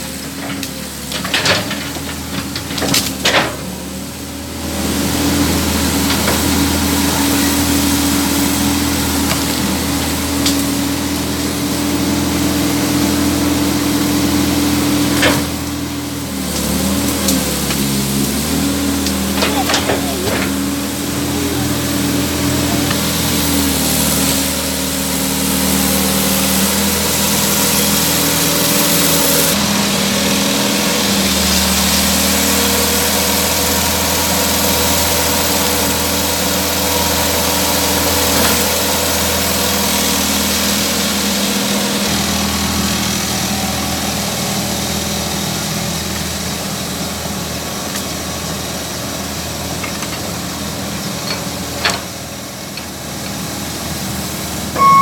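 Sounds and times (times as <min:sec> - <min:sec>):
excavator diesel engine: 0:00.0 - 0:55.0
sharp metal clank: 0:54.8 - 0:55.0.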